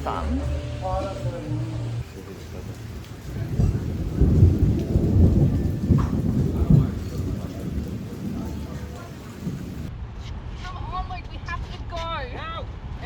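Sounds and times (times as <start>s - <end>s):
heavy rain: 0.0s - 9.9s
rolling thunder: 2.4s - 9.9s.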